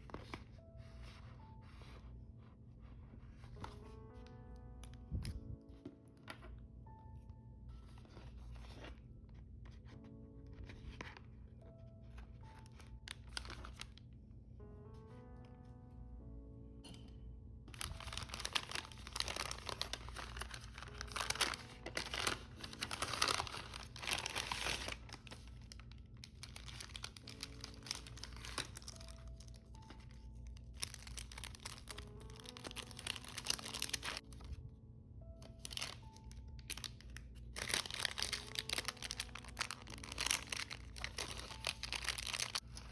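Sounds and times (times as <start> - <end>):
soft background music: 0.0 - 42.9
packaging crinkling: 12.1 - 14.1, 17.7 - 34.6, 35.4 - 42.9.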